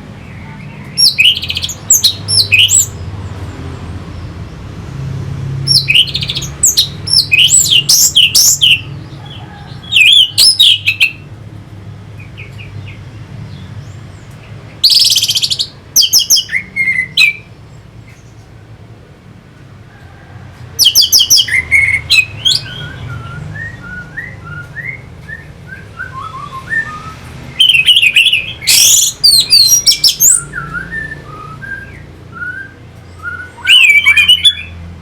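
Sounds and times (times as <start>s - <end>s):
thrush singing whistled notes: 1.0s - 3.0s, 5.7s - 9.0s, 14.8s - 17.6s, 20.8s - 34.8s.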